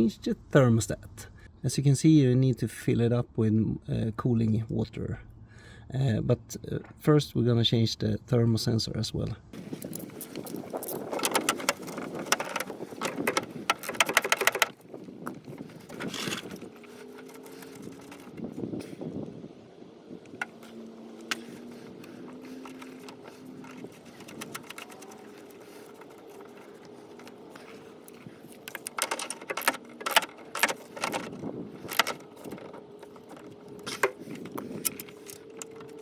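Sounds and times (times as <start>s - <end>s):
steady low hum: 0.0s - 36.0s
metal tool clinking and rattling: 9.6s - 14.8s, 15.5s - 18.4s, 22.1s - 36.0s.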